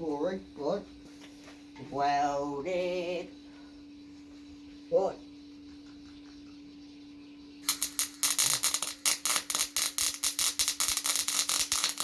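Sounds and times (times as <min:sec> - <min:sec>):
welder machine low hum: 0:02.3 - 0:12.0
welding arc crackling: 0:07.6 - 0:12.0.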